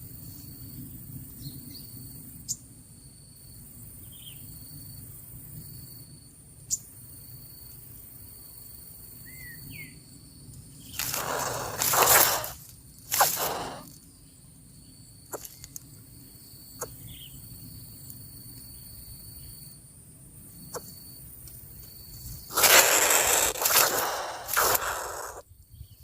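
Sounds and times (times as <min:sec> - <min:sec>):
high insect buzz: 0:10.8 - 0:14.2, 0:14.8 - 0:19.7, 0:20.5 - 0:25.5
faint bird chirps: 0:10.8 - 0:15.8, 0:16.7 - 0:17.4
sharp clicks: 0:11.0 - 0:13.9, 0:22.5 - 0:25.4
loud noise: 0:22.5 - 0:25.4.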